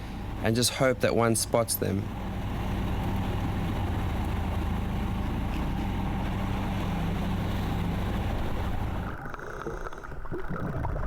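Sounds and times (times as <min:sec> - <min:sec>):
motorboat engine humming: 0:00.0 - 0:10.3
water rushing: 0:00.0 - 0:11.0.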